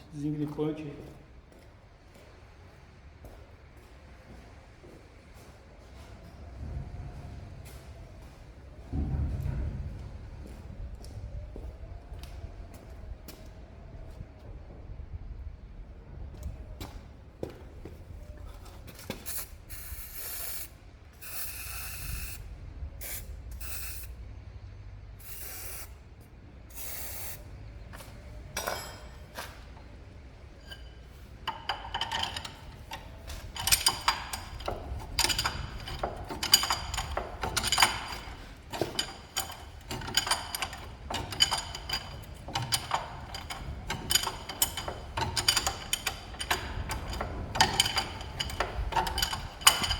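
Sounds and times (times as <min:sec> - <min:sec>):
ratchet wrench clicking: 0:31.5 - 0:49.9.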